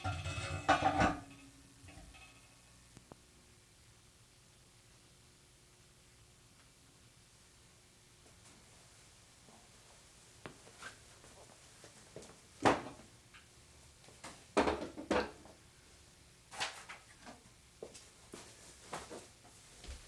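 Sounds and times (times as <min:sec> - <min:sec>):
objects knocking and clunking: 0:00.0 - 0:02.5, 0:14.3 - 0:15.6.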